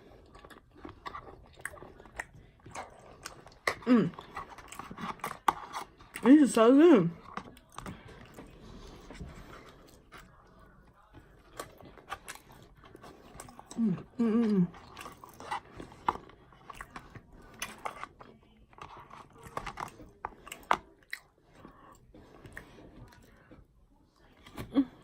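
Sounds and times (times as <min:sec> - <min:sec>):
person chewing food: 0:00.0 - 0:25.0
person humming: 0:13.8 - 0:14.7.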